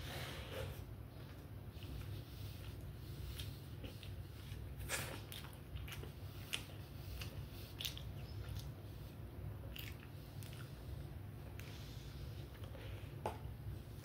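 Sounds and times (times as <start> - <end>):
steady low hum: 0.0 - 14.0
person chewing: 1.3 - 11.7.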